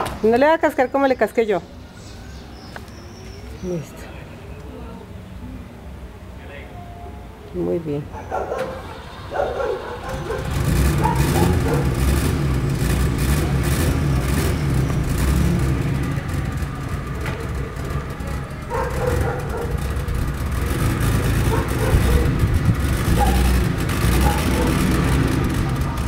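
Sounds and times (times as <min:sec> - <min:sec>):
car engine low rumble: 0:09.6 - 0:26.0.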